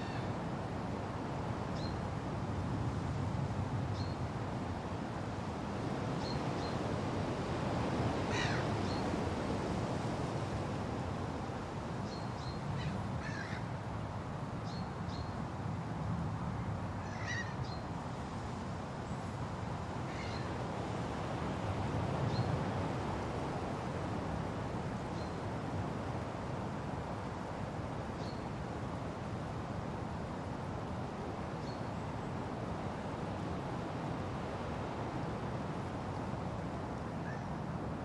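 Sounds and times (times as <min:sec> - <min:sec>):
wind rushing through trees: 0:00.0 - 0:38.0
bird calls: 0:20.1 - 0:20.5.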